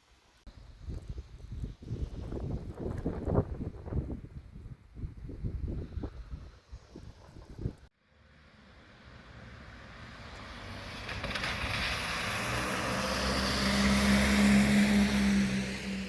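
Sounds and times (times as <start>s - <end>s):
vehicle approaching on street: 8.0s - 16.0s.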